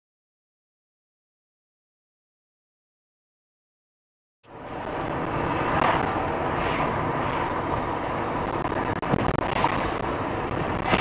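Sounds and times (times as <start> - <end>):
car road and engine noise: 4.4 - 11.0.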